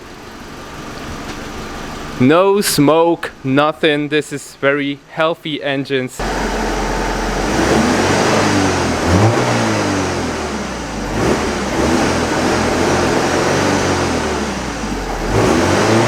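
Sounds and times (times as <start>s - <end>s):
car engine revving: 6.2s - 16.0s.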